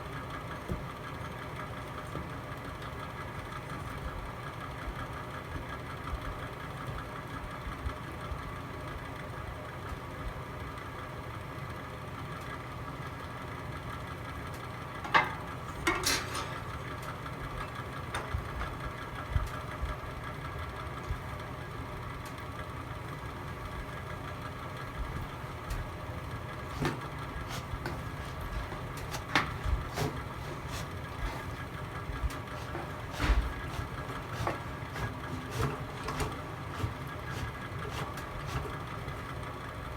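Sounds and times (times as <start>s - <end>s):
log fire crackling: 25.3s - 39.3s.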